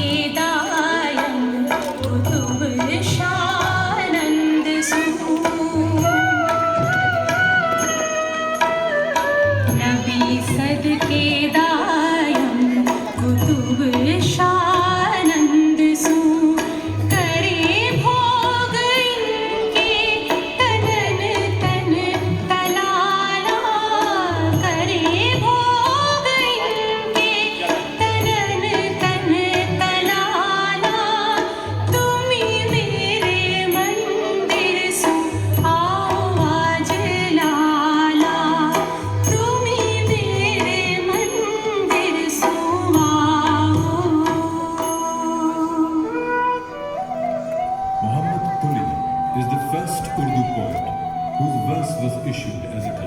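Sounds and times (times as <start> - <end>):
hand drum beat: 0.0 - 45.2.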